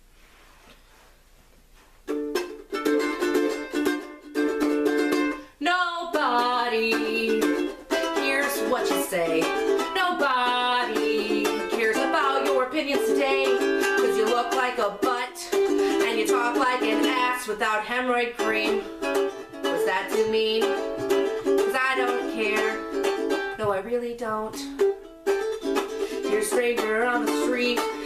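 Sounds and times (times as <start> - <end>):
ukulele strumming: 2.0 - 28.0
woman singing: 5.6 - 24.8, 26.1 - 28.0.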